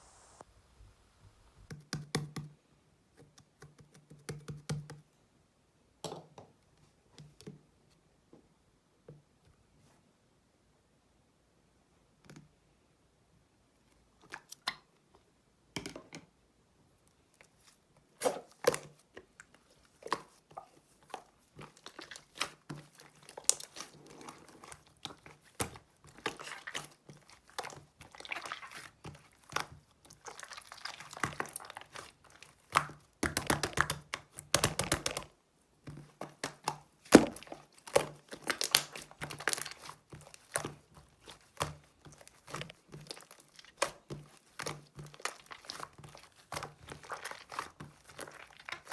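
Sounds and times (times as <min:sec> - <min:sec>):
slime crackling and popping: 0:21.7 - 0:35.3, 0:36.3 - 0:48.9.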